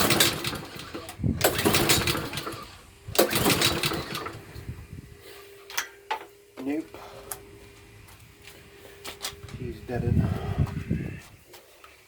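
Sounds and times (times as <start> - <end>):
lawnmower recoil starter pulls: 0.0 - 4.6
engine turning over: 0.0 - 4.8.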